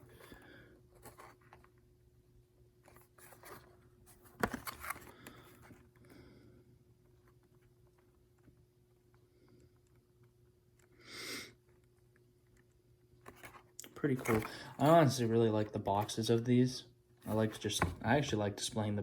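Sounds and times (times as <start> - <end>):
cardboard box scraping and rustling: 14.2 - 15.2.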